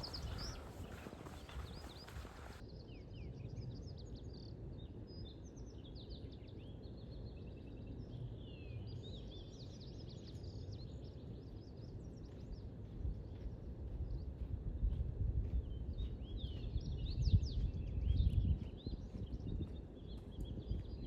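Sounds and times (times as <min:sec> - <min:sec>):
small birds chirping: 0:00.0 - 0:02.6
steady low rumble: 0:00.0 - 0:02.6.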